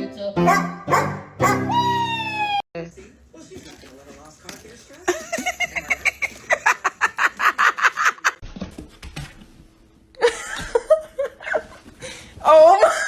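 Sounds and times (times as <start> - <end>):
person laughing: 5.1 - 8.4.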